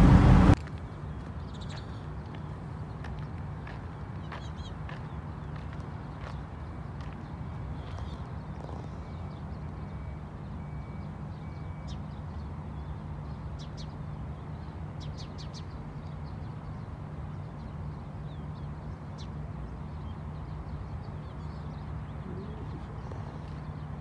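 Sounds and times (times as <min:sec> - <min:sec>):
steady low rumble: 0:00.0 - 0:01.7
birds chirping: 0:00.0 - 0:24.0.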